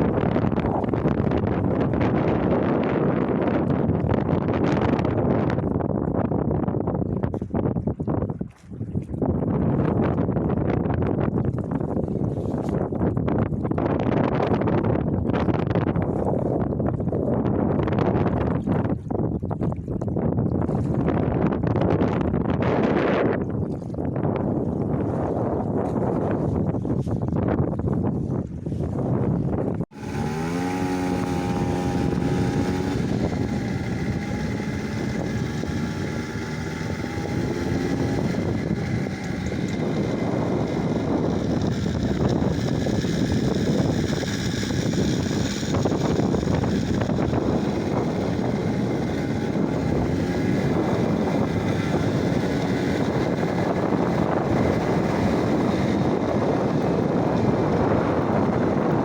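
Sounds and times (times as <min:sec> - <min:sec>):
road and wind noise: 0:00.0 - 0:59.0
engine note rising: 0:29.9 - 0:59.0.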